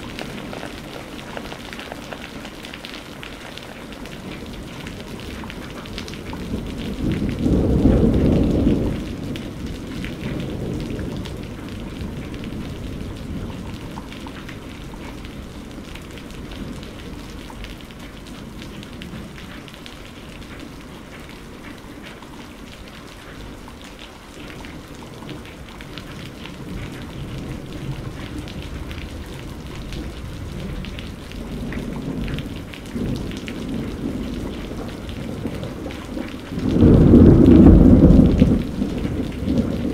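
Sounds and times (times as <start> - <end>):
steady rain falling: 0.0 - 39.9
thunder rumbling: 4.2 - 17.4, 24.7 - 39.9.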